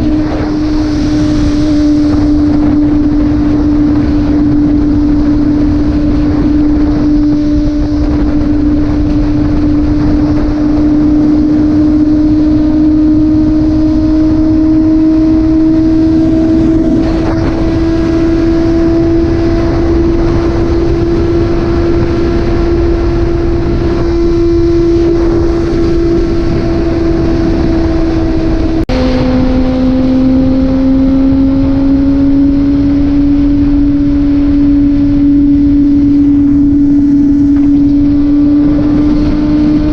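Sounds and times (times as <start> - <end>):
motorcycle engine accelerating: 0.0 - 39.9
wind rush on microphone: 0.0 - 39.9.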